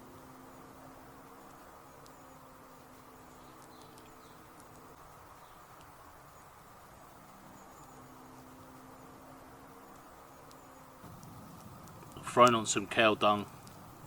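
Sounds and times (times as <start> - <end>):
flying insects buzzing: 0.0 - 14.0
faint high ticks: 1.2 - 6.0, 9.9 - 13.8.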